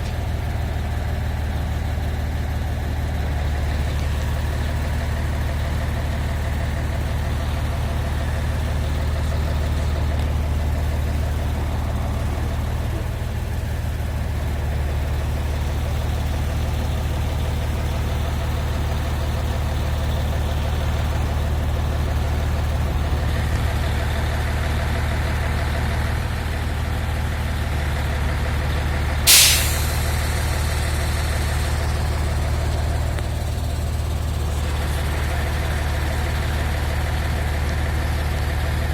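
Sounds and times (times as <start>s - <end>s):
heavy diesel engine idling: 0.0s - 38.9s
sharp hiss of released air: 29.3s - 31.8s.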